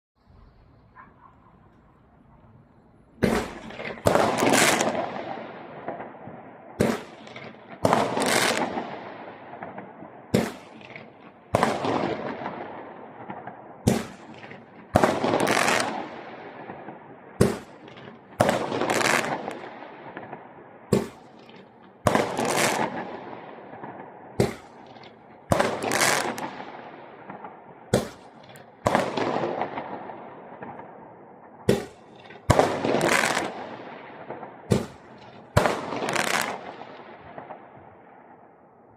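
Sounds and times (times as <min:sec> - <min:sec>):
firework bang: 0:03.2 - 0:06.1, 0:17.4 - 0:23.1, 0:23.7 - 0:26.6, 0:31.7 - 0:33.6.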